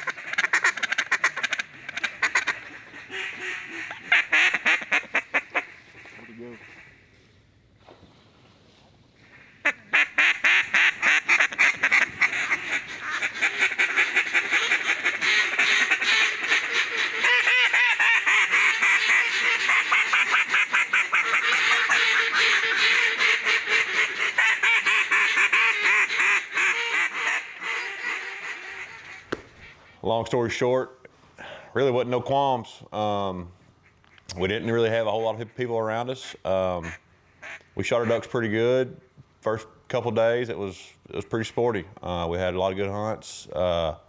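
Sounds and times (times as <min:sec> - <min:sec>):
rapid duck quacking: 0:00.0 - 0:07.0, 0:09.3 - 0:30.0, 0:36.2 - 0:38.3.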